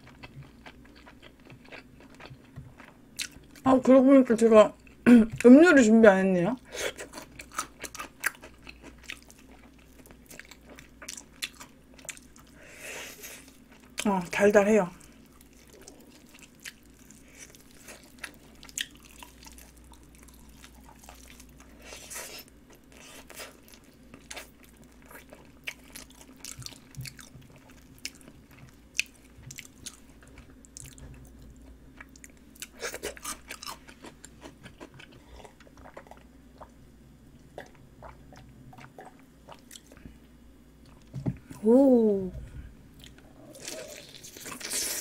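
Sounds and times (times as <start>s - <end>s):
chewing and crunching: 0.0s - 3.6s, 6.9s - 12.6s, 15.0s - 36.8s.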